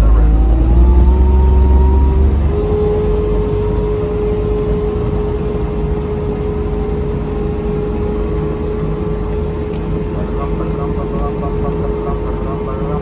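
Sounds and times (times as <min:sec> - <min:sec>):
constant steady whine: 0:00.0 - 0:13.0
vehicle low rumble: 0:00.0 - 0:13.0.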